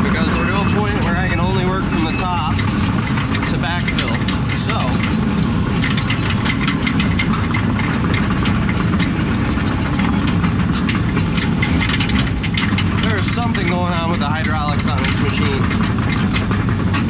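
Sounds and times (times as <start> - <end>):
diesel engine running: 0.0 - 17.0
sharp clicks and knocks: 0.0 - 17.0.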